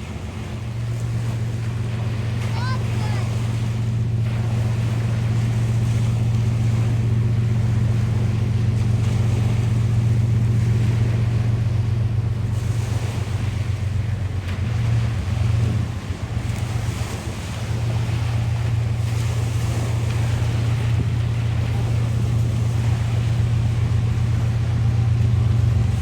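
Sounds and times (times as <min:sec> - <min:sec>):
low engine drone: 0:00.0 - 0:26.0
surf: 0:00.0 - 0:26.0
wind: 0:00.0 - 0:26.0.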